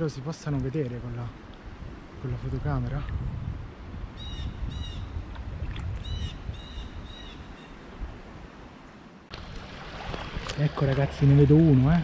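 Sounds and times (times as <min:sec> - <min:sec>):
bird calling: 0:04.2 - 0:05.2, 0:06.0 - 0:07.9.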